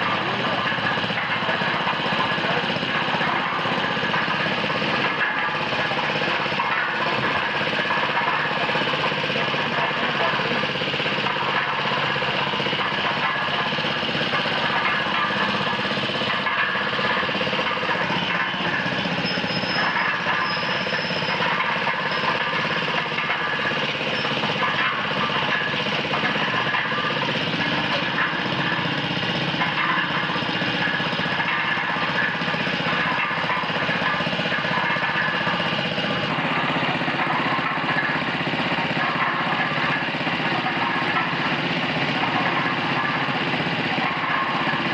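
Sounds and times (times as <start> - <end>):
small petrol engine running: 0.0 - 44.9.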